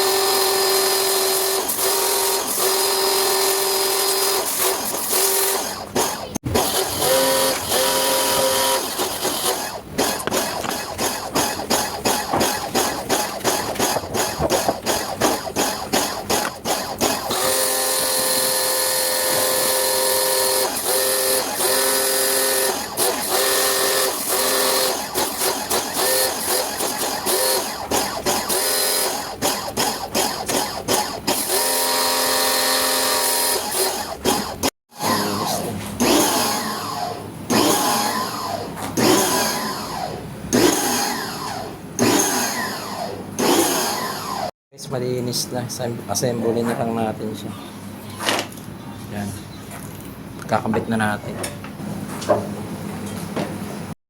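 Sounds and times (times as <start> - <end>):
small electric motor humming: 0.0 - 40.0
quick rhythmic strokes: 8.8 - 17.4.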